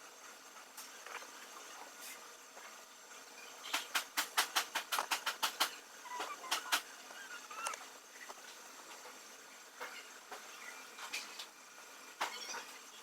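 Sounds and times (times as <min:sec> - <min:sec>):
faint steady hiss: 0:00.0 - 0:13.0
sharp clicks: 0:03.7 - 0:05.8.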